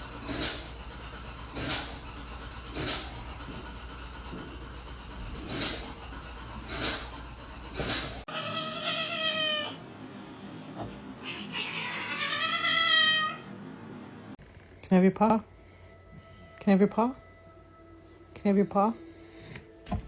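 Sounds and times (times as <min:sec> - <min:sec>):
cat meowing: 0:08.3 - 0:09.8, 0:11.2 - 0:13.4
low steady hum: 0:13.5 - 0:20.0.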